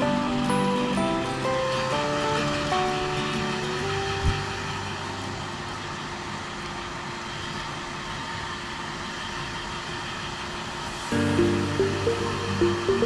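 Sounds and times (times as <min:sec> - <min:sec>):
hair dryer blowing: 0:00.0 - 0:05.5, 0:10.7 - 0:13.0.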